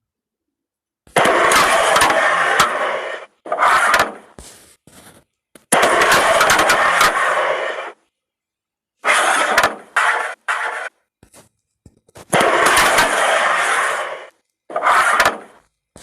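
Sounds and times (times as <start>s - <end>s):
carrom pieces sliding on board: 1.5s - 8.0s, 9.0s - 11.5s, 12.1s - 16.0s.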